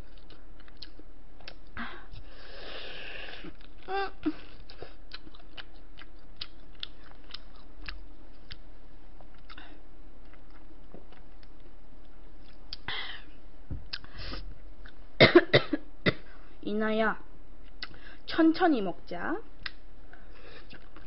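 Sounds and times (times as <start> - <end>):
chewing meat off a bone: 4.6 - 9.6.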